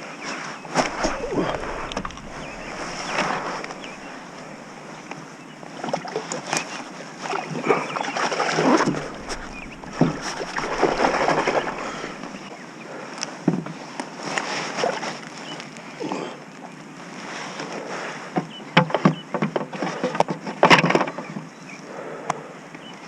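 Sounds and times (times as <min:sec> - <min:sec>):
knocks against hull: 0:00.8 - 0:05.0, 0:08.7 - 0:12.5
water sloshing around kayak: 0:00.8 - 0:06.2, 0:07.7 - 0:12.5.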